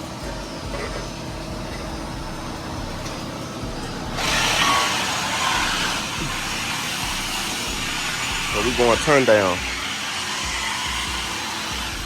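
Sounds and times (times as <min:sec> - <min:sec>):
car engine running: 0:00.0 - 0:12.0
loud hiss: 0:04.0 - 0:12.0.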